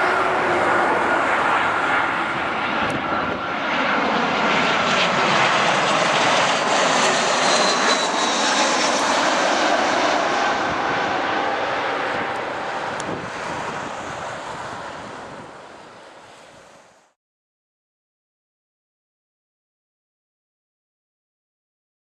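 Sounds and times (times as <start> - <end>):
jet engine rumble with whine: 0.0 - 17.2.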